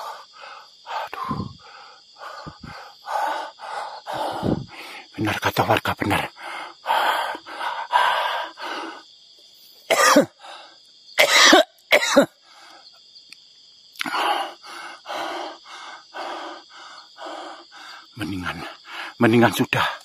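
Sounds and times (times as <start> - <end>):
heavy rhythmic breathing: 0.0 - 5.4, 6.0 - 9.6, 14.0 - 20.0
man coughing: 9.9 - 10.4, 11.2 - 12.4.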